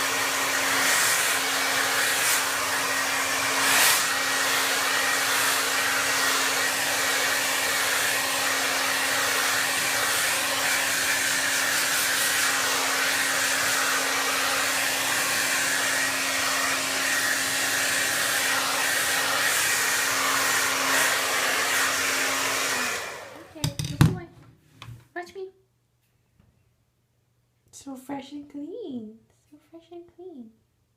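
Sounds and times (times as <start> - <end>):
hair dryer blowing: 0.0 - 23.8.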